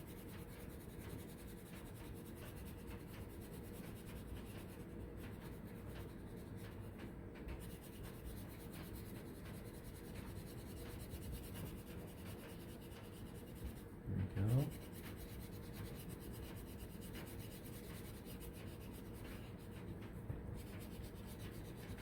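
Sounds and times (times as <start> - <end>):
crayon scribbling on paper: 7.6 - 13.9, 14.6 - 20.0, 20.6 - 22.0.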